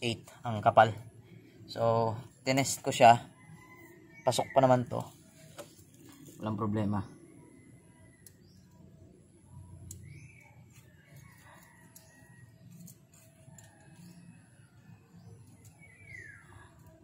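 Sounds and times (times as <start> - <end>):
light clicks on metal parts: 9.7 - 14.3
faint bird calls: 15.0 - 17.0.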